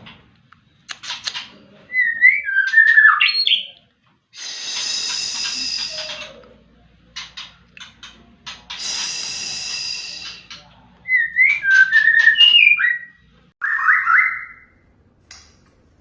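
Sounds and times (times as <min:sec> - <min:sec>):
harsh buzzing bird rattle: 0:00.9 - 0:01.6, 0:04.4 - 0:06.4, 0:07.1 - 0:10.6
bird whistling song: 0:01.9 - 0:03.8, 0:04.4 - 0:06.4, 0:08.7 - 0:14.7.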